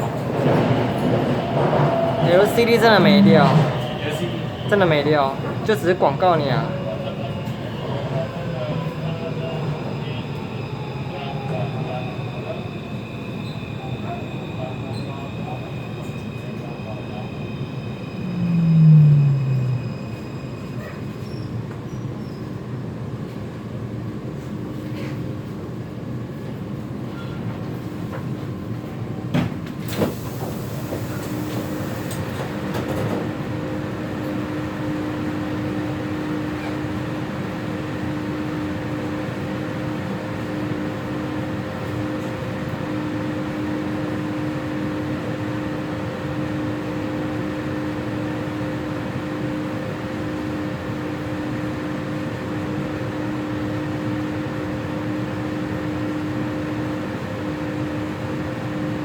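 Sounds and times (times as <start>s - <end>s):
train car rumble: 0.0s - 23.5s
low hum: 17.9s - 20.4s.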